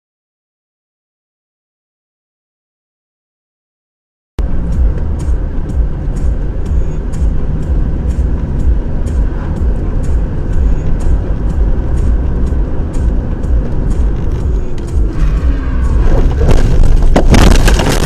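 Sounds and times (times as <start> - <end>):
car engine and road noise: 4.4 - 18.0.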